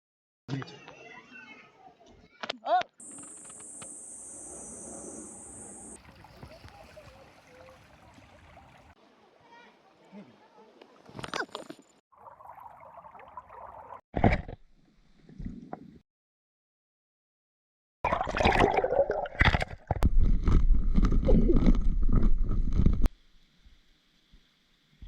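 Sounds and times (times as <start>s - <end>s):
water rushing: 5.8s - 9.0s, 12.2s - 14.0s
water gurgling and splashing: 6.0s - 9.0s, 12.1s - 14.0s, 18.1s - 23.1s.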